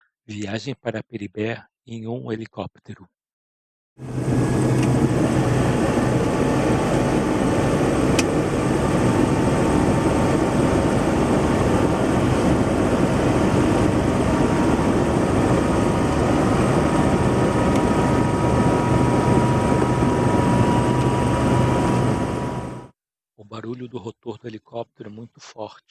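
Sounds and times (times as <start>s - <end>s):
helicopter rotor and turbine: 4.0s - 22.9s.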